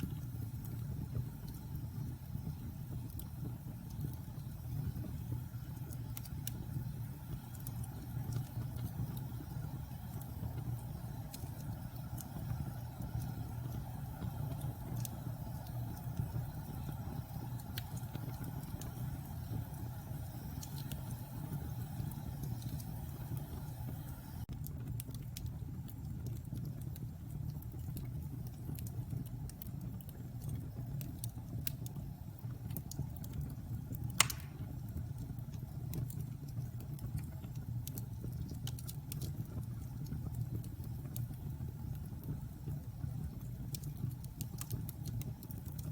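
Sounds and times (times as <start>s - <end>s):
wood fire crackling: 0.0s - 45.9s
loud fire pop: 34.2s - 34.8s.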